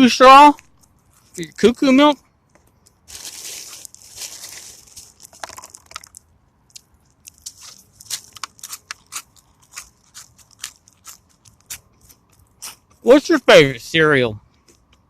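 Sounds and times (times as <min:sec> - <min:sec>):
person chewing crunchy cereal: 0:03.0 - 0:13.0.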